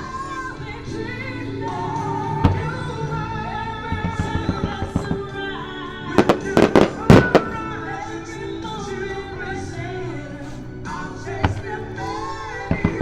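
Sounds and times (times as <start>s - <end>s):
music with singing: 0.0s - 13.0s
firework bangs: 6.1s - 9.0s
fireworks crackling pops: 6.2s - 7.8s.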